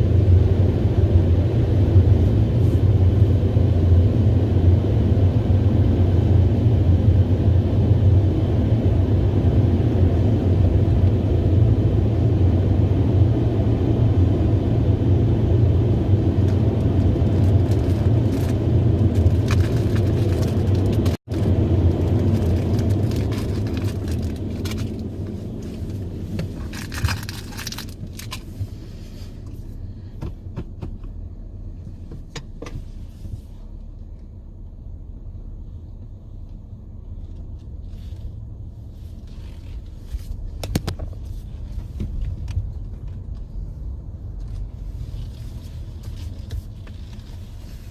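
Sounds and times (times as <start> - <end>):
car wash machine rumbling: 0.0 - 30.9.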